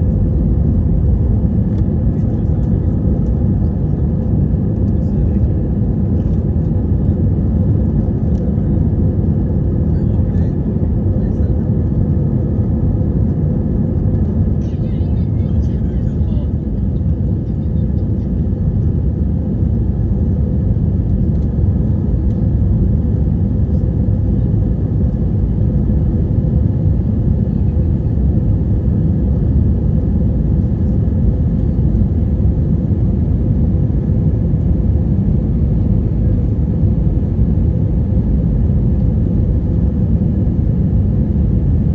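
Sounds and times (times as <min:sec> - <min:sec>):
jet engines rumbling: 0:00.0 - 0:41.9.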